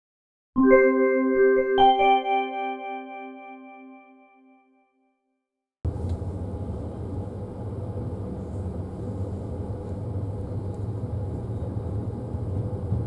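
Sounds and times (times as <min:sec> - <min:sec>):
train carriage rumbling on rails: 0:05.9 - 0:13.0.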